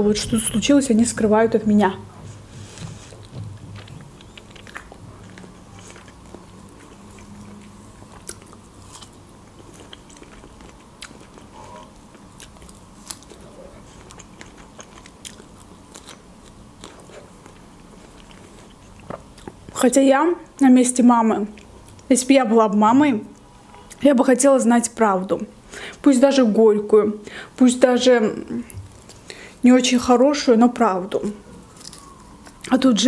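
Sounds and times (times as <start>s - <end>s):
strawberry bitten and chewed: 2.6s - 19.8s.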